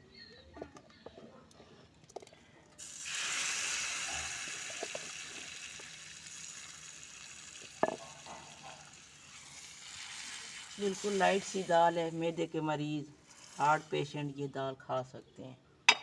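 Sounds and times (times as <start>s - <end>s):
hot oil sizzling: 2.8s - 12.6s, 13.2s - 14.2s.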